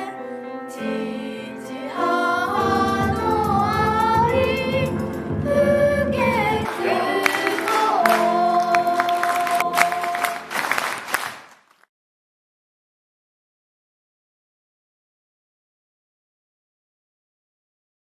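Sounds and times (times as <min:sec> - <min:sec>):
choir singing: 0:00.0 - 0:11.4
low accompaniment: 0:02.2 - 0:11.3
people clapping: 0:06.6 - 0:11.9.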